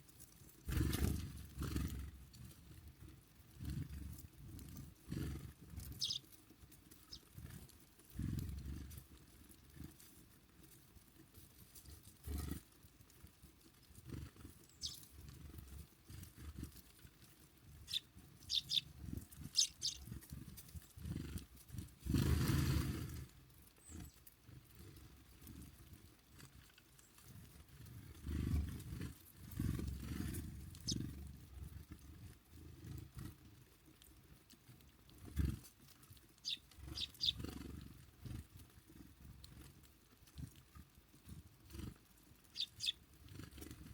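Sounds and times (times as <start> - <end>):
songbirds chirping: 3.5 - 9.0, 14.0 - 16.7, 17.6 - 22.5, 23.2 - 25.7, 26.8 - 31.2, 35.2 - 38.4, 42.4 - 43.9.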